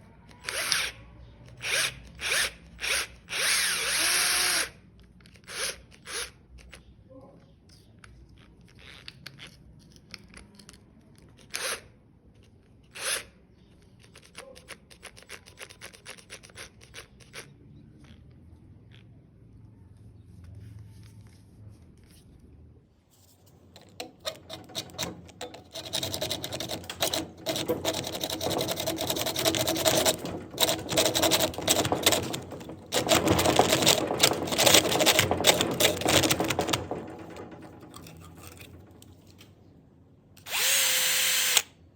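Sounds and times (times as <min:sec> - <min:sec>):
drill-spun blade cutting plastic pipe: 0:00.4 - 0:00.9, 0:01.6 - 0:04.7, 0:23.8 - 0:37.0, 0:40.4 - 0:41.7.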